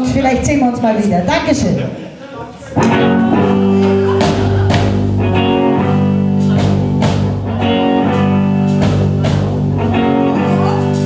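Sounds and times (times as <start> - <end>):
guitar chords ringing: 2.8 - 11.0
live band playing blues rock: 2.8 - 11.0
sharp rhythmic hits: 2.8 - 11.0.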